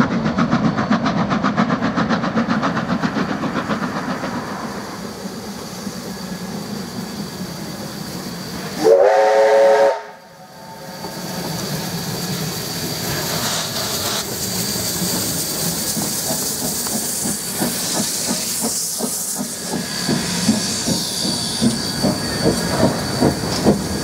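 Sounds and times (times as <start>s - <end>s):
steam locomotive chuffing: 0.0s - 24.0s
steam whistle blast: 8.8s - 10.5s.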